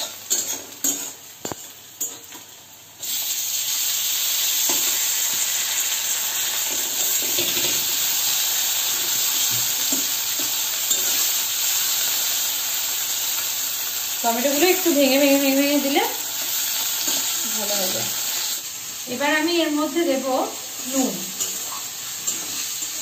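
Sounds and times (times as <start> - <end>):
metal spatula scraping: 0.0 - 2.3, 21.2 - 23.0
onions sizzling in wok: 0.0 - 23.0.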